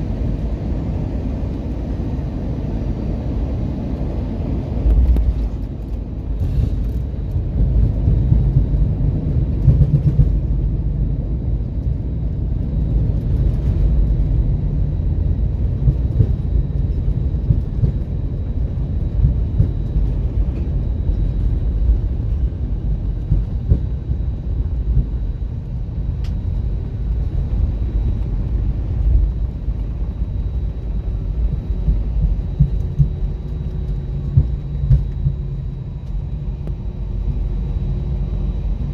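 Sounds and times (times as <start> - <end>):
airplane cabin rumble: 0.0 - 38.9.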